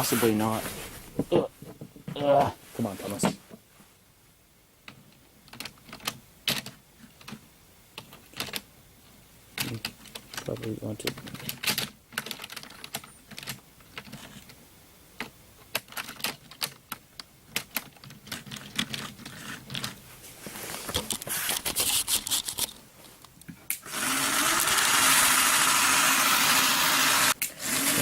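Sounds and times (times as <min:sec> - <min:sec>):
electric motor whirring: 0:23.8 - 0:28.0.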